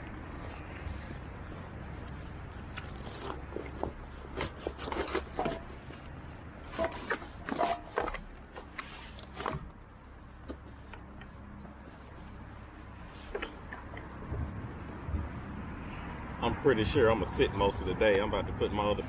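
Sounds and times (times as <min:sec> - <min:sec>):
clicks scrapes and rustles: 0:00.0 - 0:11.7
low steady rumble: 0:00.0 - 0:19.0.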